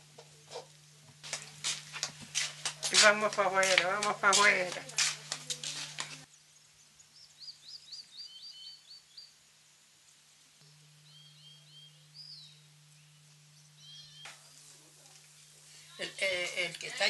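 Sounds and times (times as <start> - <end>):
faint steady hiss: 0.0 - 17.0
low hum: 10.3 - 17.0.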